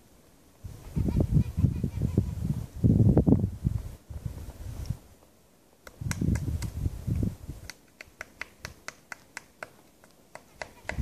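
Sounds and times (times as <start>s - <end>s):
woodpecker tapping on bark: 5.8s - 6.8s, 7.6s - 11.0s.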